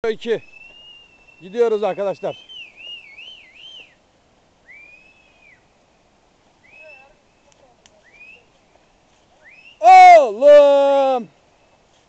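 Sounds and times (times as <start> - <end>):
whistled notes: 0.4 - 4.0, 4.6 - 5.6, 6.6 - 7.2
person shouting: 9.8 - 11.3.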